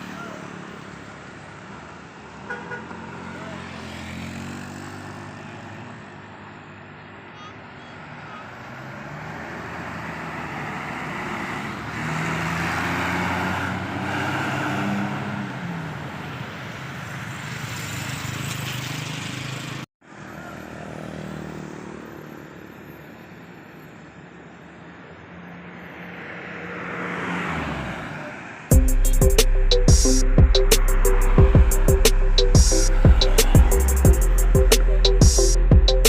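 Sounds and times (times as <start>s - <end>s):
bus engines driving past: 0.0s - 28.7s, 29.5s - 36.0s
vehicle approaching: 3.0s - 7.0s, 26.0s - 36.0s.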